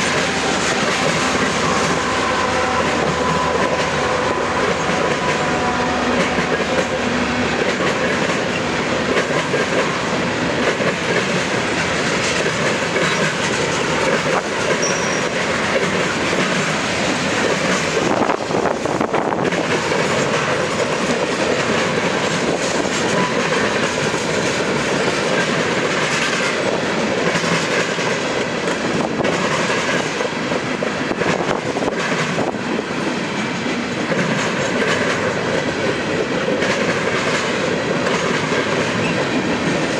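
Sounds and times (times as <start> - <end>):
freight train rolling past: 0.0 - 39.9.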